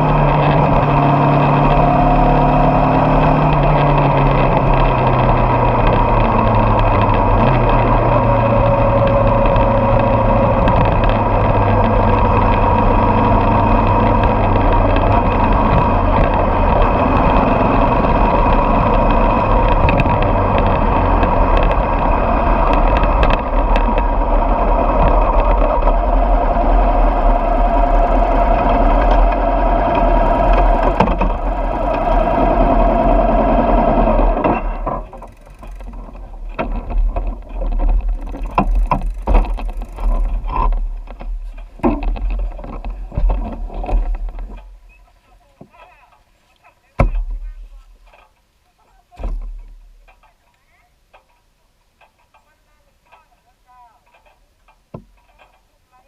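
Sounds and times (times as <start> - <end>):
motorcycle engine running: 0.0 - 46.1.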